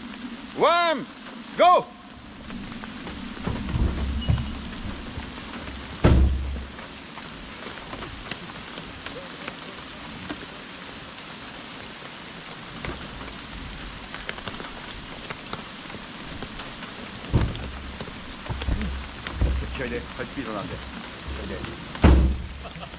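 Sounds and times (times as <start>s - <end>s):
rain hiss: 0.0s - 22.9s
raindrops ticking: 2.4s - 22.9s
dull thump: 2.5s - 6.8s, 16.3s - 20.2s, 20.8s - 22.7s.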